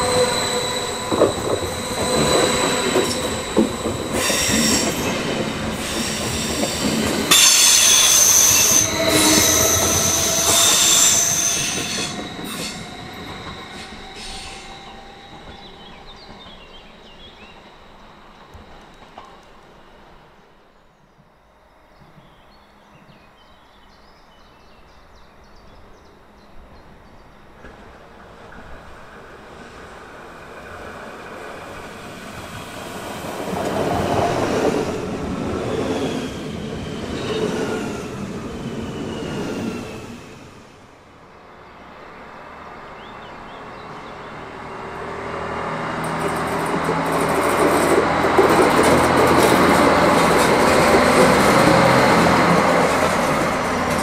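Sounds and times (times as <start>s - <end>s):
falling whining tones: 0.0s - 19.7s
passenger train passing: 0.0s - 21.2s, 21.8s - 54.0s
diesel railcar engine hum: 0.0s - 54.0s.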